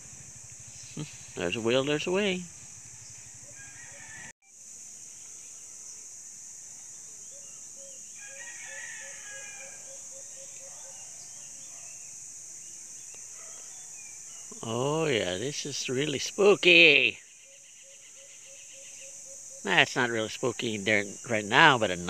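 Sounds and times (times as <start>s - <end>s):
high insect drone: 0.0s - 22.0s
birds chirping: 6.9s - 22.0s.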